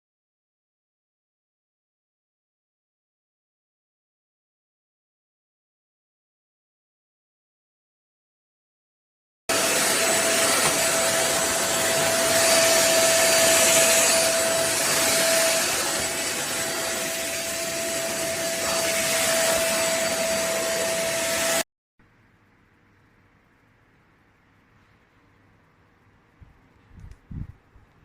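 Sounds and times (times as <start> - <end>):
vacuum cleaner running: 9.5 - 21.6.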